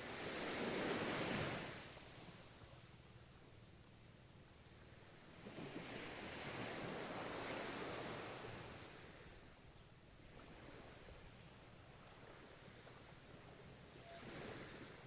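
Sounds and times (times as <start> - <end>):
surf washing: 0.0 - 2.6, 5.3 - 9.2, 10.2 - 15.0.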